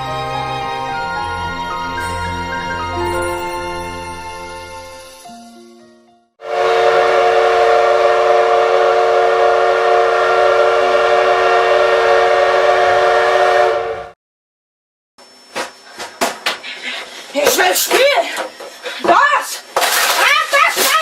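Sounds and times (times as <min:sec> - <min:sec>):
train whistle blast: 0:06.4 - 0:14.2.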